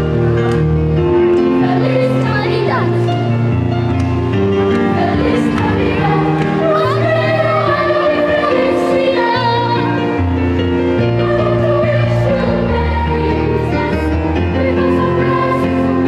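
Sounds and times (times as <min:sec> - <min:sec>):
children's choir singing a carol: 0:01.4 - 0:03.4, 0:04.7 - 0:10.2, 0:10.8 - 0:16.0.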